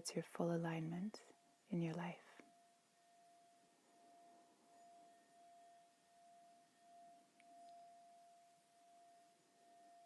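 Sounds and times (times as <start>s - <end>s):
singing bowl ringing: 2.4s - 10.0s.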